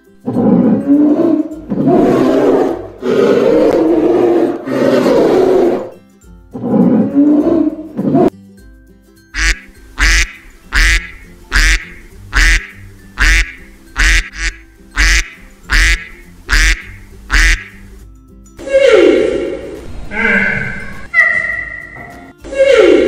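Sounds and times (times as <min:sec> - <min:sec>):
duck quacking: 0:09.4 - 0:17.9.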